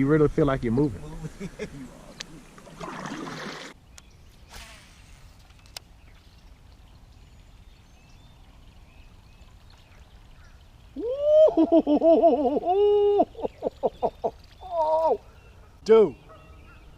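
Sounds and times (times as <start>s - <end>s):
soft bird chirps: 3.8s - 11.1s, 13.1s - 16.9s.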